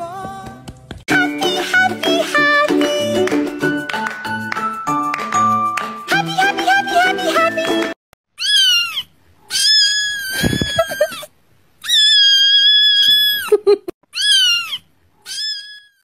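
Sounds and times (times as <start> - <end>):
kitten crying: 8.4 - 16.0.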